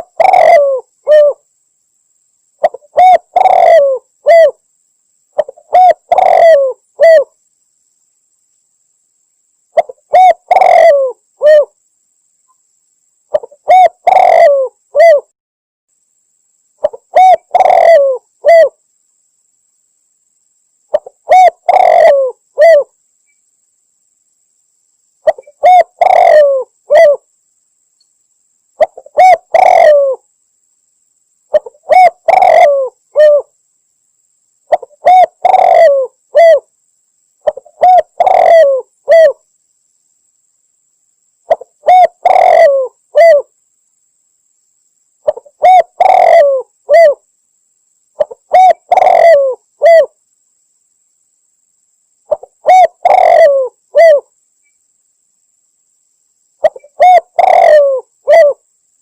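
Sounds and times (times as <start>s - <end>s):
dove cooing: 0.0s - 1.4s, 2.6s - 4.6s, 5.4s - 7.3s, 9.8s - 11.8s, 13.3s - 15.3s, 16.8s - 18.8s, 20.9s - 22.9s, 25.2s - 27.3s, 28.8s - 30.2s, 31.5s - 33.5s, 34.7s - 36.7s, 37.4s - 39.4s, 41.5s - 43.5s, 45.2s - 47.2s, 48.2s - 50.2s, 52.3s - 54.3s, 56.6s - 58.6s.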